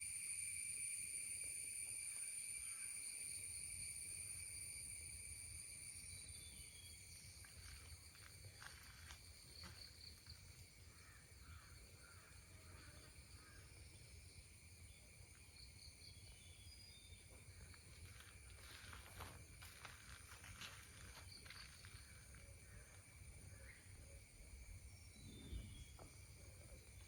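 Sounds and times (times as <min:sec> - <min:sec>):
high-pitched insect trilling: 0:00.0 - 0:24.0.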